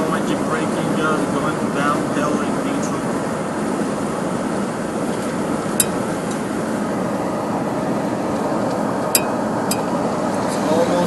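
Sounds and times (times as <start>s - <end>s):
road and wind noise in car: 0.0s - 11.0s.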